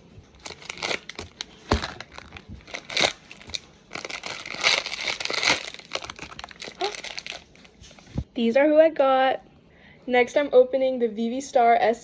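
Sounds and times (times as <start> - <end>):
packaging crinkling and tearing: 0.3 - 7.8.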